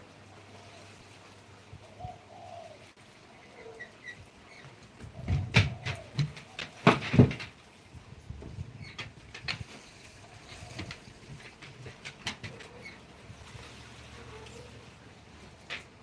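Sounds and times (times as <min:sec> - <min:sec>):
pigeon cooing: 0:01.8 - 0:07.0, 0:10.1 - 0:13.2, 0:14.1 - 0:15.8.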